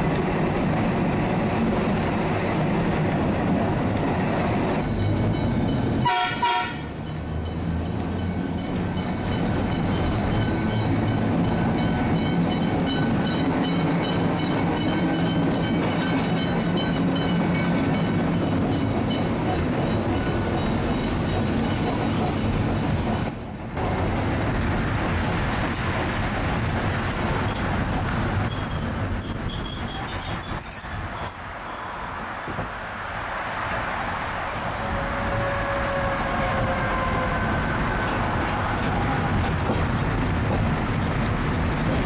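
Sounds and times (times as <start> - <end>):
tram wheels rumbling on rails: 0.0 - 42.0
high wheel squeal: 25.6 - 32.0.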